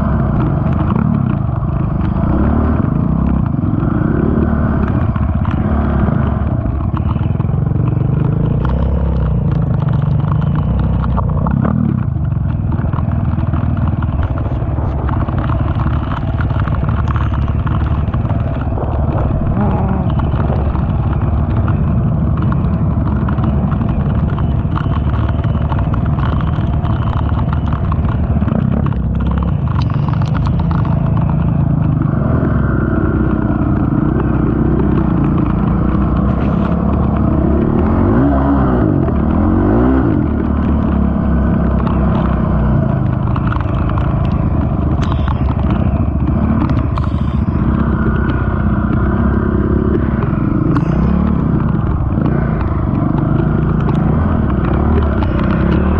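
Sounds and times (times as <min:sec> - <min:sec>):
atv engine revving: 0:00.0 - 0:55.9
knocks and rattles: 0:00.0 - 0:55.9.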